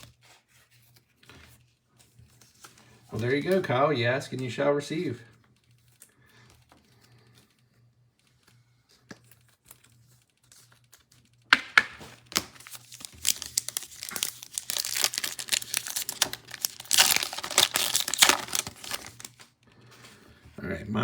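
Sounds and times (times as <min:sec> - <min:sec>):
foil wrapper tearing and crinkling: 0:12.2 - 0:19.5.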